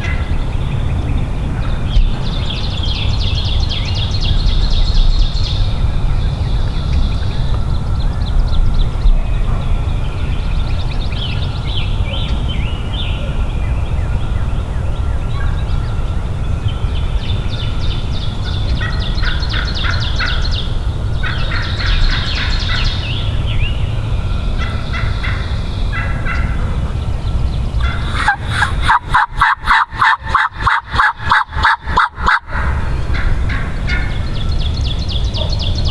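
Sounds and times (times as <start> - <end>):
turkey gobbling: 27.8 - 34.2.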